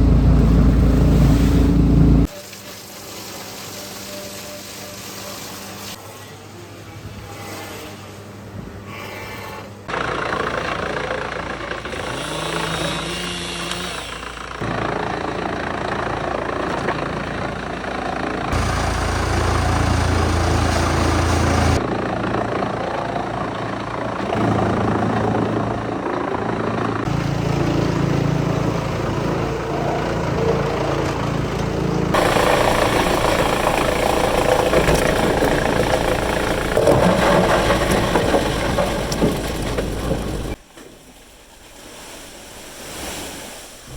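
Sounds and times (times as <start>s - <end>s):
wood chipper grinding: 9.9s - 40.6s.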